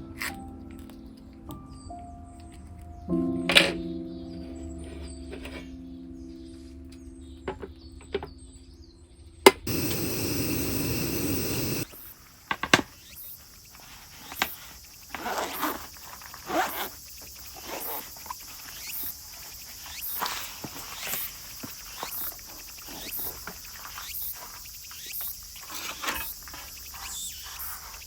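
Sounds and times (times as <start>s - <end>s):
rushing noise: 9.7s - 11.9s
high-pitched insect chorus: 9.7s - 28.0s.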